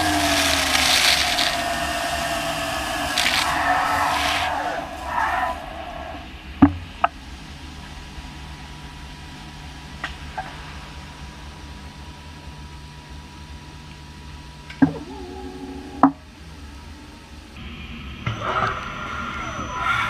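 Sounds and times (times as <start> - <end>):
lathe machine hum: 0.0 - 10.0.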